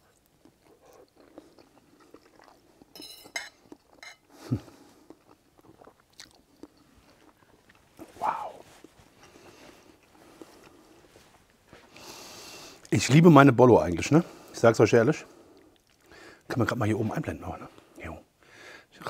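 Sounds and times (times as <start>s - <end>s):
man chewing food: 0.0s - 12.9s, 15.3s - 16.4s
cutlery clinking: 2.9s - 4.3s.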